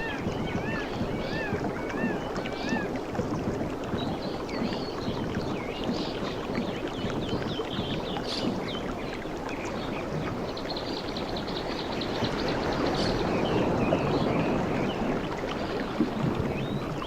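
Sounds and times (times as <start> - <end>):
sea waves washing on beach: 0.0 - 17.0.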